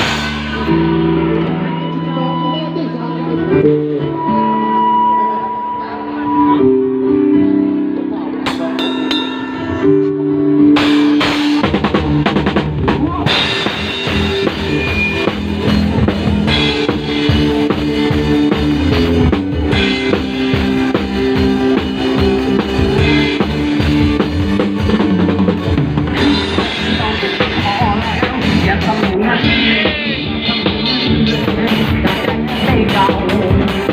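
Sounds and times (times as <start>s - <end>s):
drum kit beat: 0.0s - 1.3s, 8.4s - 33.9s
sustained melody notes: 0.0s - 32.6s.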